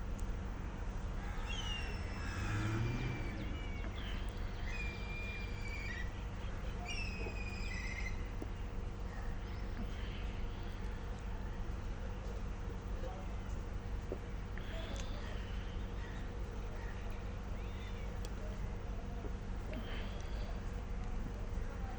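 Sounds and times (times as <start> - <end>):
low background rumble: 0.0 - 21.9
birds whistling calls: 1.2 - 8.4.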